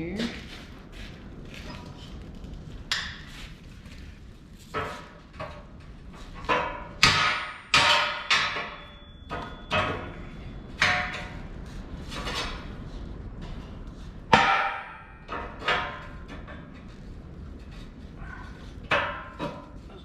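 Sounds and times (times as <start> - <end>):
steel parts clanking: 6.4 - 11.4.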